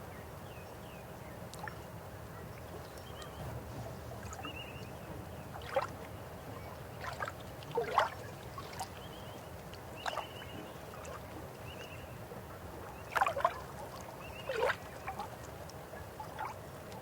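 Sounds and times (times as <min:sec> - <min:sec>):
water gurgles and splashes: 0:05.5 - 0:09.1, 0:09.7 - 0:11.7, 0:12.7 - 0:17.0.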